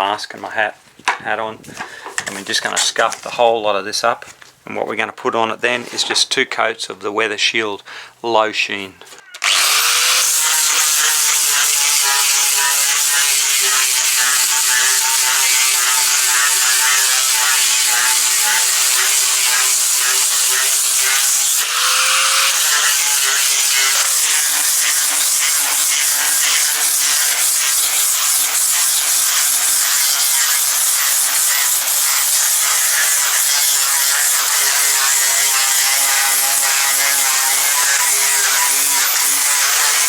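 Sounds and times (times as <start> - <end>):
angle grinder sanding wood: 9.4 - 40.0.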